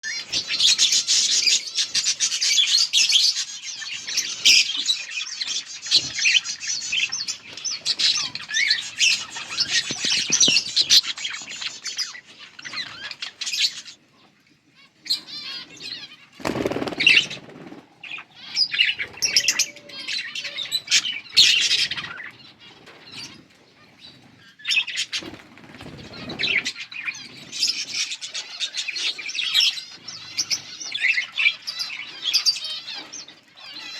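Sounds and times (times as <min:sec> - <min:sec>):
budgerigars chirping: 0:00.1 - 0:14.0, 0:15.0 - 0:23.4.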